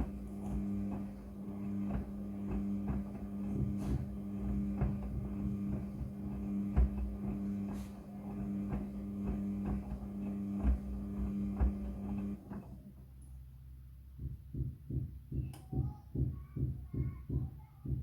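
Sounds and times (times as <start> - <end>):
washing machine motor hum: 0.0 - 13.5
drum knocking: 4.7 - 7.5, 14.2 - 18.0
regular low thumping: 14.1 - 18.0.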